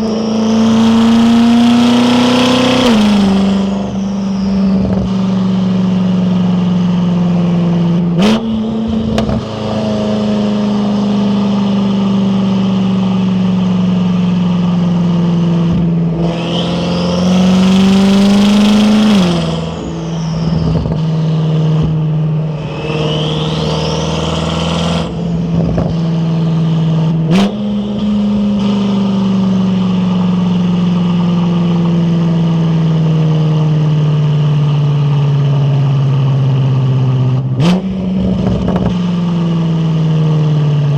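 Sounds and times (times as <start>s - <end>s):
turbo whistle: 0.0s - 5.4s, 16.2s - 21.4s, 22.5s - 25.2s
car engine accelerating: 0.0s - 40.9s.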